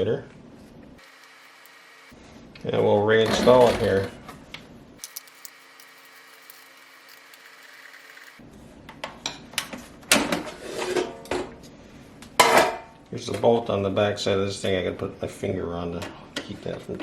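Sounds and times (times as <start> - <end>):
small parts clicking and clattering: 5.0 - 8.4.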